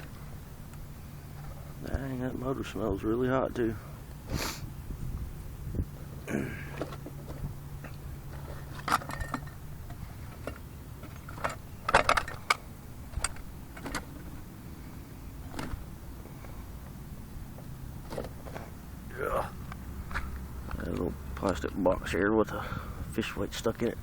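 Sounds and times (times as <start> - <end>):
plastic parts clicking and rattling: 6.7 - 14.3.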